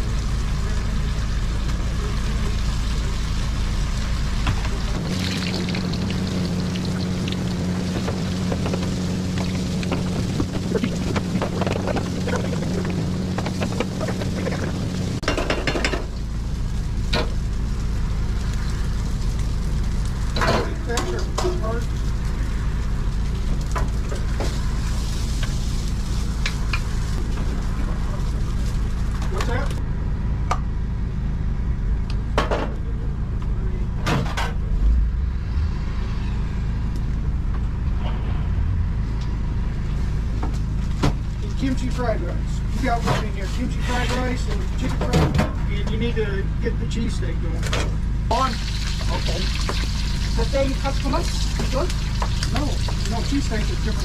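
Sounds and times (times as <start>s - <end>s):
food sizzling in hot oil: 0.0s - 29.2s, 48.0s - 54.0s
low hum: 0.0s - 50.4s
low machine rumble: 0.0s - 54.0s.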